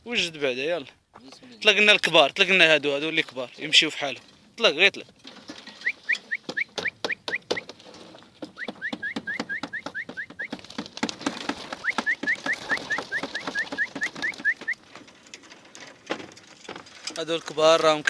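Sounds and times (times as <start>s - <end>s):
wings clicking and fluttering: 3.2s - 18.0s
bird chirping rising notes: 5.8s - 7.6s.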